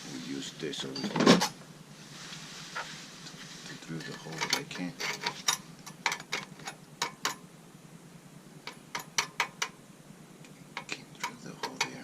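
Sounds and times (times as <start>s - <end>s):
hand tools clicking on metal: 4.0s - 7.4s, 8.7s - 9.7s, 10.8s - 12.0s.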